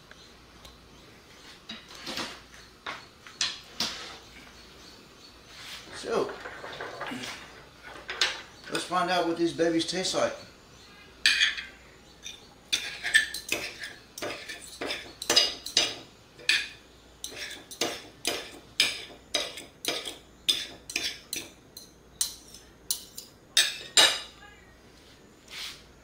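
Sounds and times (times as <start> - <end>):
cutlery clinking on a plate: 11.2 - 24.4.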